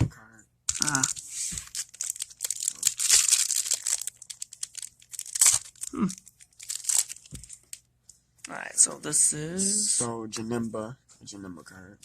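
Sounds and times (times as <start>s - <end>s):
foil wrapper tearing and crinkling: 0.7s - 7.8s.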